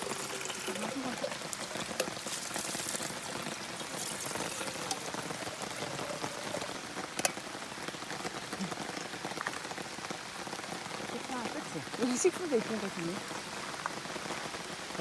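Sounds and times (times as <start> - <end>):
dripping water: 0.0 - 14.6
heavy rain hissing: 0.0 - 15.0.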